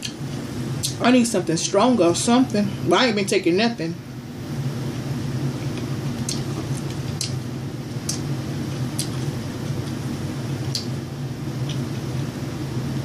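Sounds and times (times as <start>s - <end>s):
low room hum: 0.0s - 13.0s
chewing mouth clicks: 5.6s - 7.4s, 8.0s - 8.3s, 8.9s - 10.0s, 10.7s - 10.9s.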